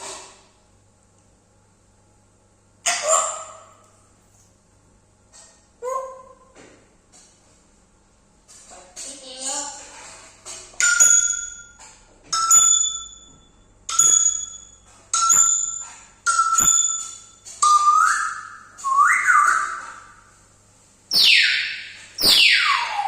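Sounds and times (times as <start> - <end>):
parrot whistling: 17.6 - 20.2, 21.1 - 23.0.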